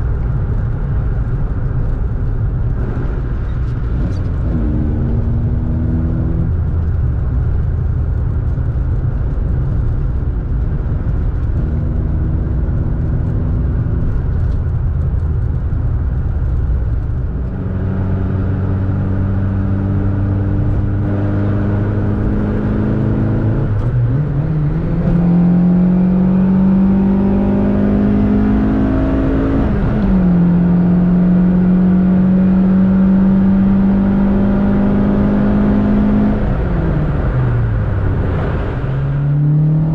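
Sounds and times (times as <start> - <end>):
car engine pulling: 1.3 - 19.7.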